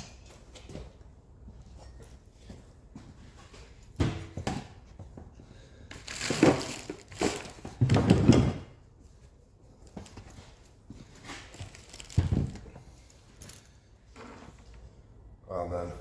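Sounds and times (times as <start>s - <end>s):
metal parts clunking: 5.9s - 8.4s, 11.1s - 13.8s.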